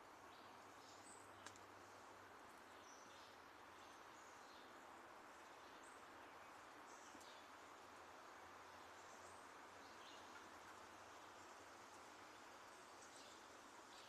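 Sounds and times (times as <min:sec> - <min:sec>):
small birds chirping: 0:00.0 - 0:14.0
steady hiss: 0:00.0 - 0:14.0.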